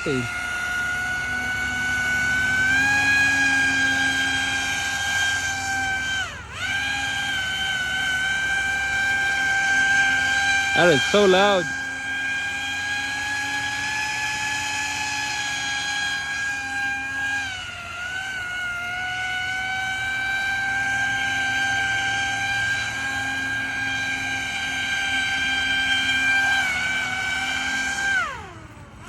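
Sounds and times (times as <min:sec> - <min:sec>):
rc airboat motor whining: 0:00.0 - 0:29.0.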